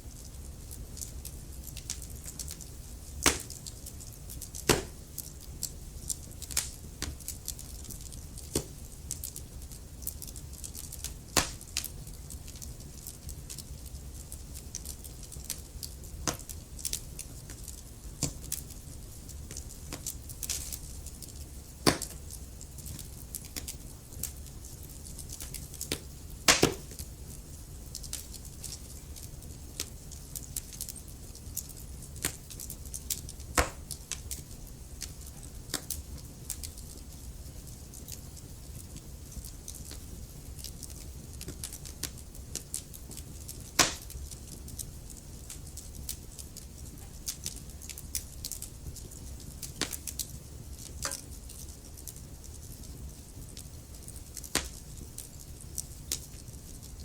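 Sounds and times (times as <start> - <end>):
wood fire crackling: 0.0 - 57.0
loud fire pops: 1.7 - 9.4, 10.0 - 11.9, 19.5 - 24.4, 25.1 - 27.1, 31.6 - 37.0, 38.9 - 51.8.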